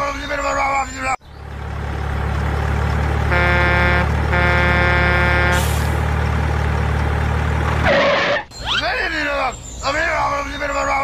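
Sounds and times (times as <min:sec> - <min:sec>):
diesel truck engine running: 0:00.0 - 0:10.8
truck horn blasts: 0:03.2 - 0:06.0.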